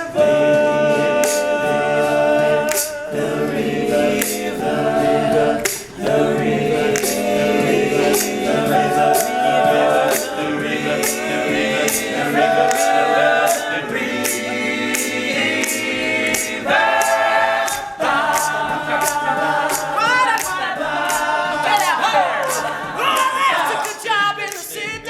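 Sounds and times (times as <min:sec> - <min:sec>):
male a cappella group singing: 0:00.0 - 0:25.0
sharp percussive hits: 0:01.0 - 0:24.6.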